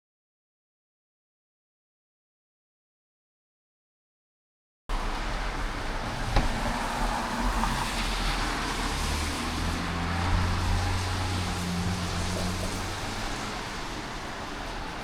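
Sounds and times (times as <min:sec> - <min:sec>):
motor vehicle hum: 0:04.9 - 0:15.0
road traffic hiss: 0:04.9 - 0:15.0.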